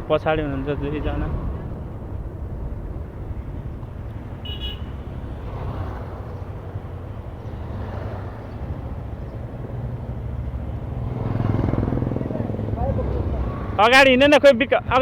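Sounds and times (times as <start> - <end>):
road traffic: 0.0 - 15.0
high-pitched horn beep: 4.4 - 5.0.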